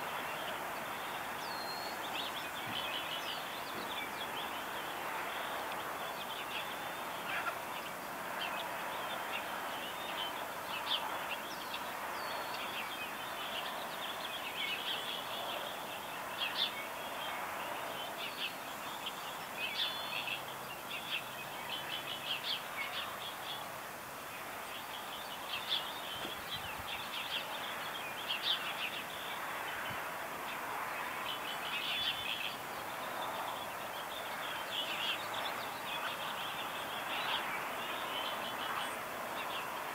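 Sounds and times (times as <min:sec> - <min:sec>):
steady background hiss: 0:00.0 - 0:39.9
birds chirping and singing: 0:00.3 - 0:23.6.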